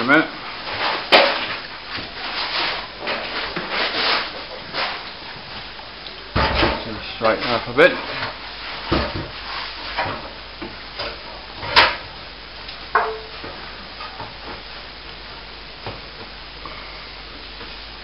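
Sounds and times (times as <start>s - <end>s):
plasterboard sheet scraping: 0.6s - 5.0s.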